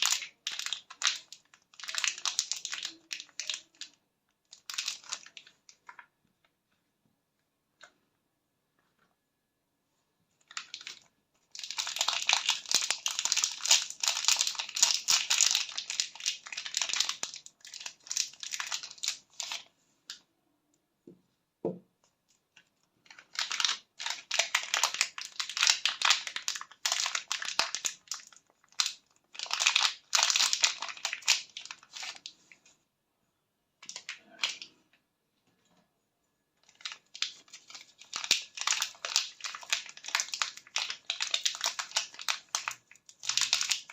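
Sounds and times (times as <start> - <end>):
wrappers crinkling and tearing: 0.0 - 6.0, 10.4 - 19.7, 23.0 - 32.5, 36.6 - 43.9.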